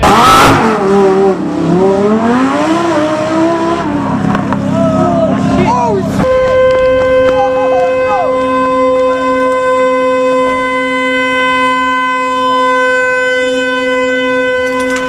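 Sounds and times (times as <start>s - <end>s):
horn steady note: 6.0s - 15.0s.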